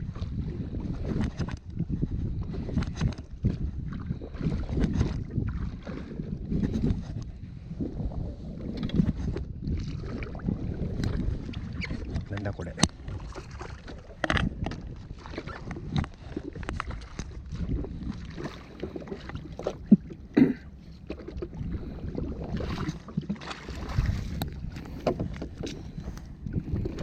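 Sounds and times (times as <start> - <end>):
water sloshing against hull: 0.0 - 27.0.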